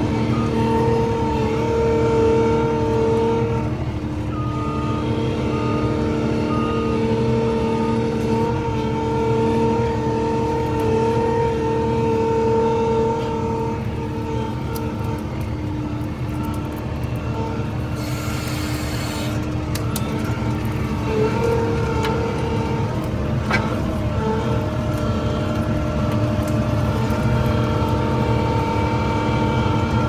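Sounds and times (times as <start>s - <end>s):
loader engine running: 0.0s - 30.0s
reversing alarm beeping: 17.9s - 22.9s.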